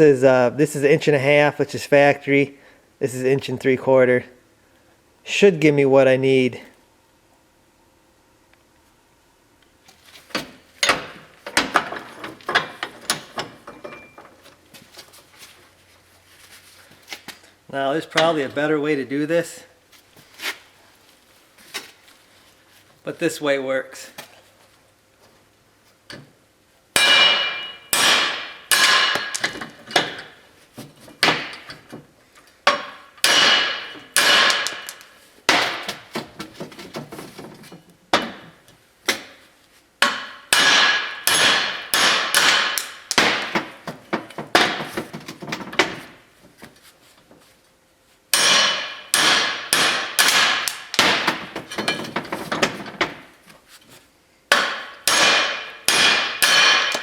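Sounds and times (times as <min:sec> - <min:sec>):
hammer striking steel studs: 0:10.3 - 0:14.2, 0:27.0 - 0:30.4, 0:31.2 - 0:31.9, 0:32.7 - 0:36.5, 0:40.0 - 0:46.1, 0:48.3 - 0:53.2, 0:54.5 - 0:57.0
metal axle ringing: 0:27.0 - 0:29.4.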